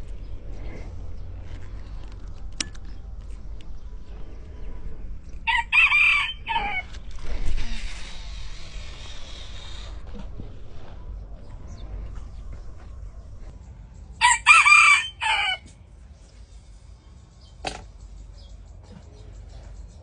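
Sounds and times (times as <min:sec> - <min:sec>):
rooster crowing: 0:05.4 - 0:06.9, 0:14.2 - 0:15.7.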